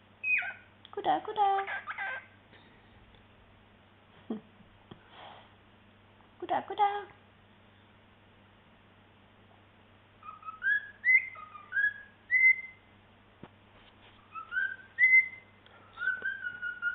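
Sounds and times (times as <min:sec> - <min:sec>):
cockatiel whistling: 0:00.2 - 0:00.6, 0:10.2 - 0:12.8, 0:14.2 - 0:16.9.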